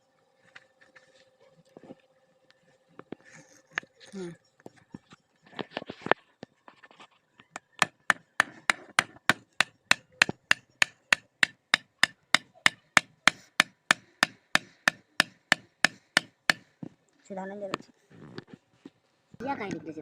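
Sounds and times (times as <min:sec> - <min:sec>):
hammer striking iron on anvil: 0:07.8 - 0:16.6.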